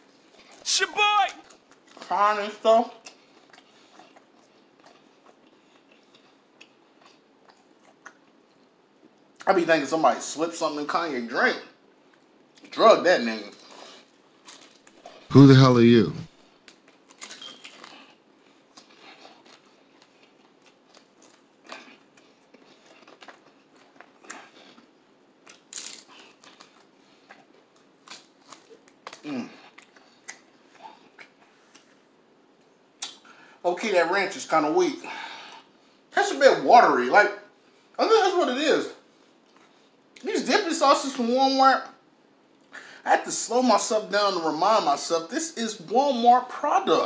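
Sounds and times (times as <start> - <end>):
faint chewing of crispy chicken: 1.4 - 2.4, 3.0 - 9.5, 13.4 - 15.3, 16.5 - 33.5.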